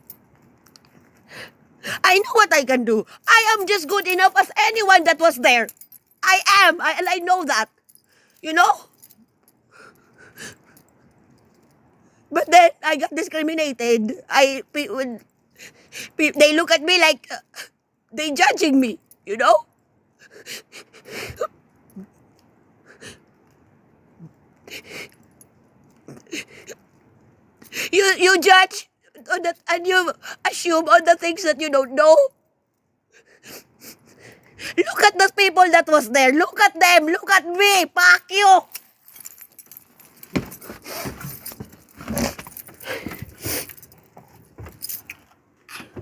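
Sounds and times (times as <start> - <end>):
rustling and clinking handling: 0.0 - 1.3, 3.1 - 12.3, 21.6 - 27.7, 38.6 - 46.0.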